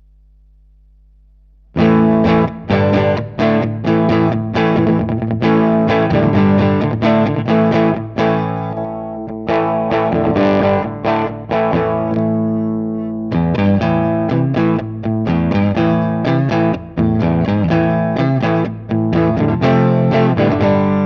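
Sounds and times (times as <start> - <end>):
distorted electric guitar chords: 1.7 - 21.0.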